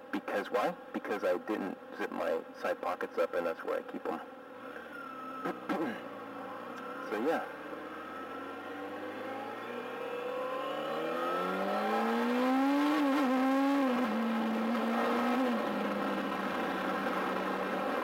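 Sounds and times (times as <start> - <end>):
motorcycle engine accelerating: 4.9 - 18.0.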